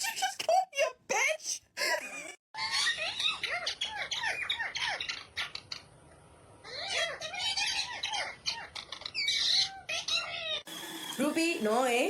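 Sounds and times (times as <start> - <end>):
parrot squawking: 2.6 - 6.0, 6.6 - 10.7.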